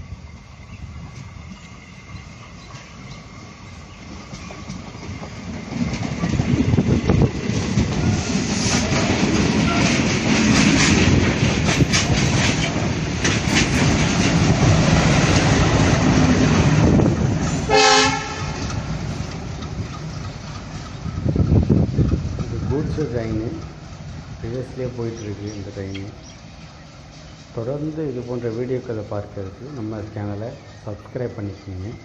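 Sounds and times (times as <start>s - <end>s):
train rumbling past: 0.0s - 32.0s
wheels clattering over rail joints: 1.2s - 17.7s, 18.4s - 32.0s
train horn blast: 17.7s - 18.8s.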